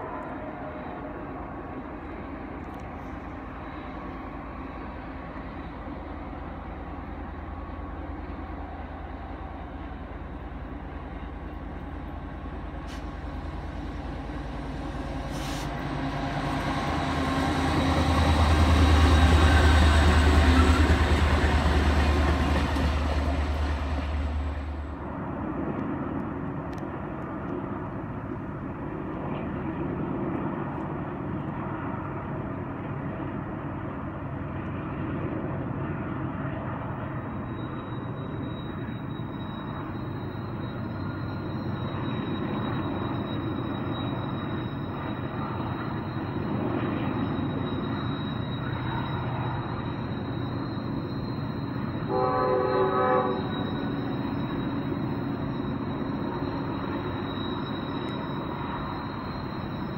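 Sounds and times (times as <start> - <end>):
diesel locomotive engine hum: 0.0 - 59.9
train rolling rumble: 0.0 - 59.9
faint high whine: 36.4 - 59.9.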